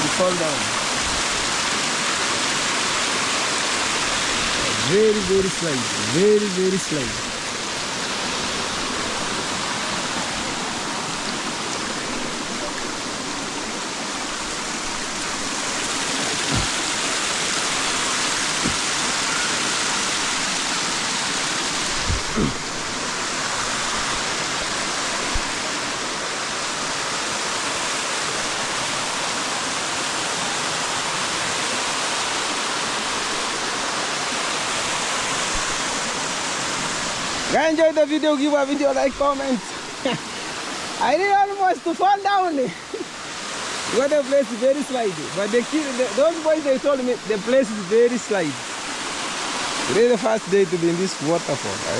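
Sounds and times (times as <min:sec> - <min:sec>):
waterfall rushing: 0:00.0 - 0:51.9
short knocks: 0:18.6 - 0:18.9.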